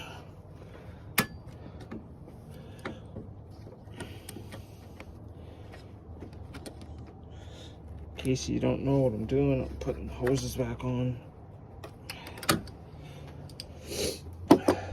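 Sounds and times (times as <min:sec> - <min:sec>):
steady low hum: 0:00.0 - 0:14.9
hands clicking and knocking hoses: 0:01.1 - 0:08.4, 0:11.8 - 0:13.8.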